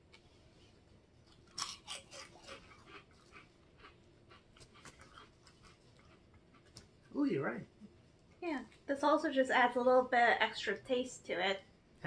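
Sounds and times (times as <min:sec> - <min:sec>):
crisp chips crunching: 0:01.3 - 0:03.4.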